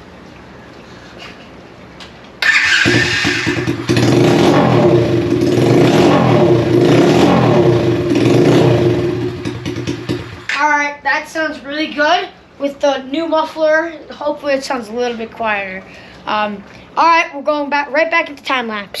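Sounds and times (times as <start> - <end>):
pit bike engine revving: 2.4 - 10.5.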